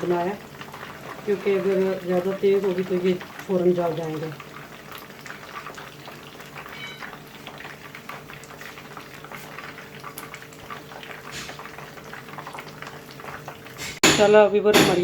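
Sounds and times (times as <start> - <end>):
hot oil sizzling and crackling: 0.0 - 15.0.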